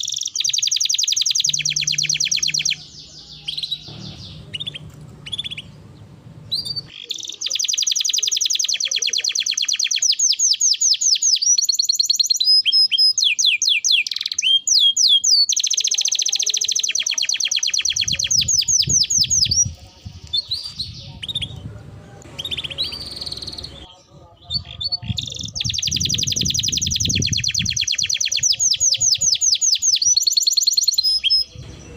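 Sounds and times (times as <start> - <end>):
canary singing: 0.0 - 31.9.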